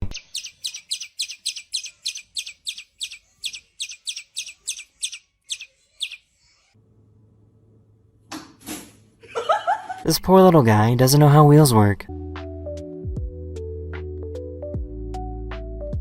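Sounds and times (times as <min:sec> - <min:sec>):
small bird chirping: 0:00.0 - 0:06.8.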